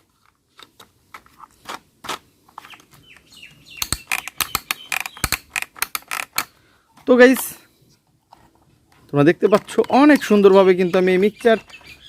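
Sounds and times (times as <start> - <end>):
plastic toy parts clicking: 2.6 - 6.6.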